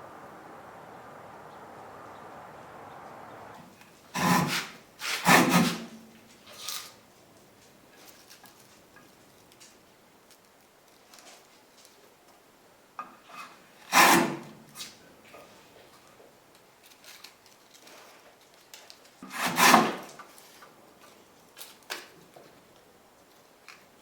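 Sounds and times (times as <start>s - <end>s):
hand plane shaving wood: 4.1s - 5.9s, 13.9s - 14.6s, 19.2s - 20.2s.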